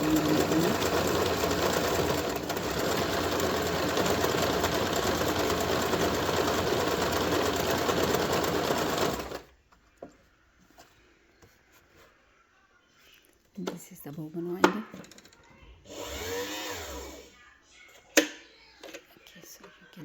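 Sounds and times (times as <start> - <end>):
sewing machine stitching: 0.0 - 9.5, 15.9 - 17.2.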